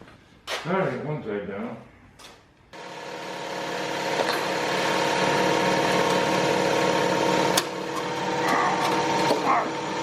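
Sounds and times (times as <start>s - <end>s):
motor humming: 2.8s - 10.0s.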